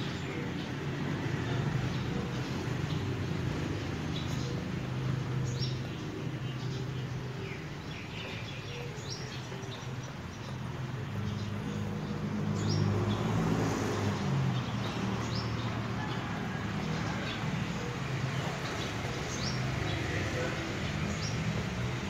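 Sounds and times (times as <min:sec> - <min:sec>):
small birds chirping: 0:00.0 - 0:15.8.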